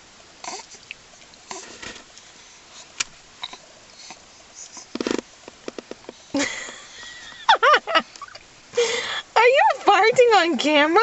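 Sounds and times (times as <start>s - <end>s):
soft rustles: 1.2s - 6.3s.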